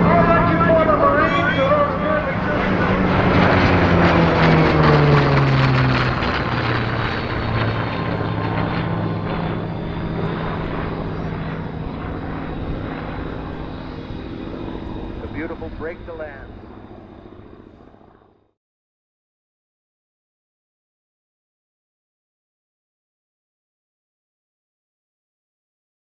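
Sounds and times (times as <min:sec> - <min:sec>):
propeller airplane passing by: 0:00.0 - 0:18.5.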